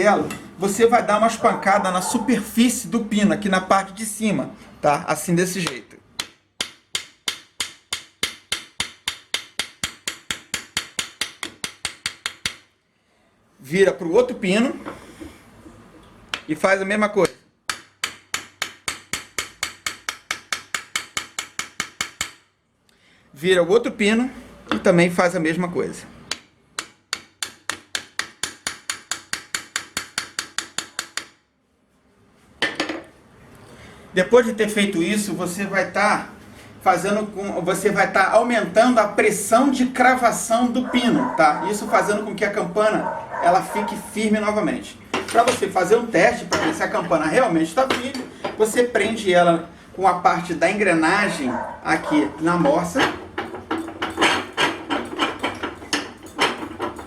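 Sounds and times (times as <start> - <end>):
hammer tapping on metal pin: 17.7 - 22.4, 26.3 - 31.4.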